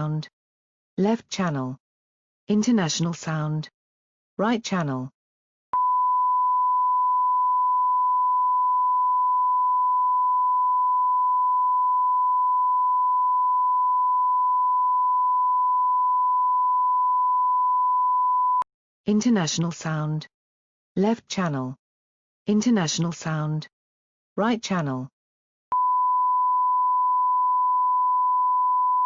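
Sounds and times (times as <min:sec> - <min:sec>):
sine wave test tone: 0:05.8 - 0:18.7, 0:25.7 - 0:29.0.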